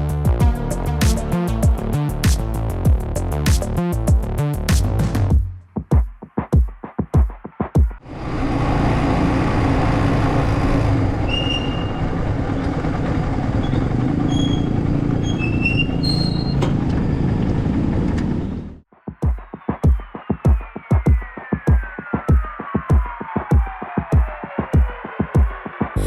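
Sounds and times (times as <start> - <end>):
wind and road noise: 8.0 - 18.8.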